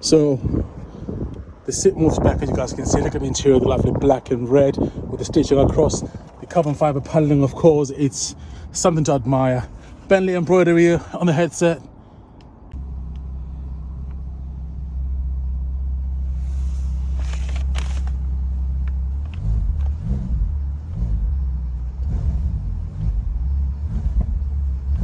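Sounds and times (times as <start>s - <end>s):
car engine droning: 11.9s - 25.0s.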